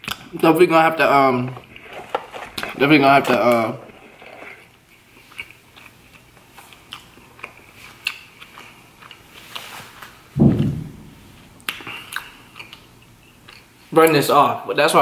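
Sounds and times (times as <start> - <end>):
man chewing food: 3.8 - 10.2, 11.4 - 13.9
low thump of cup handled: 10.4 - 11.3.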